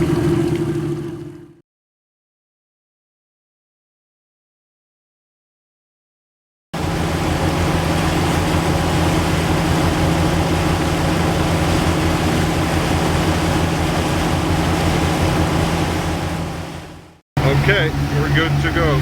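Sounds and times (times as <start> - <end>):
diesel engines droning: 0.0 - 1.6, 6.8 - 19.0.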